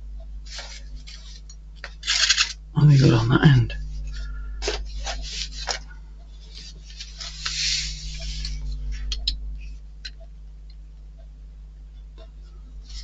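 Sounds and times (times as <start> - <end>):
steady low hum: 0.0 - 13.0
rustling scrape: 0.5 - 2.5, 3.9 - 9.1.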